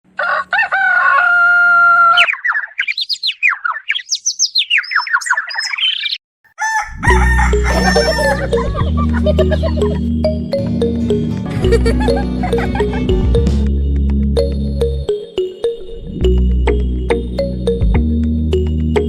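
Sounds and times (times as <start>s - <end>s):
rooster crowing: 0.1s - 2.3s, 6.5s - 8.6s
songbird whistling: 2.2s - 6.2s
music with heavy bass: 7.0s - 15.1s, 16.1s - 19.0s.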